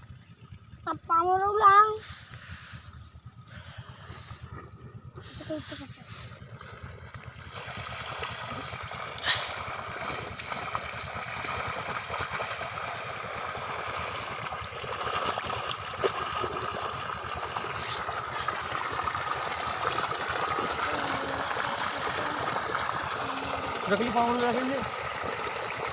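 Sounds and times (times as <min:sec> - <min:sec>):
diesel pump engine pulsing: 0:00.0 - 0:25.9
water gushing from pipe: 0:05.2 - 0:25.9.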